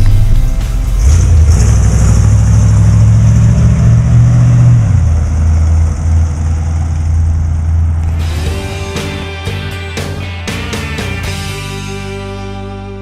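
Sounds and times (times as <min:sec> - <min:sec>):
car engine running loudly: 0:00.0 - 0:12.4.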